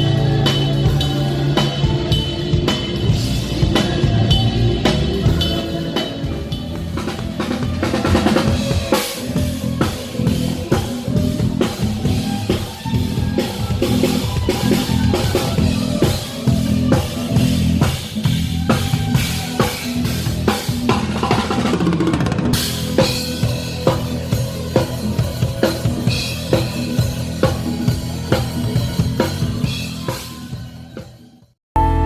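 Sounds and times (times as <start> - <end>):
drum kit playing: 0.0 - 32.0
low bass notes: 31.8 - 32.0.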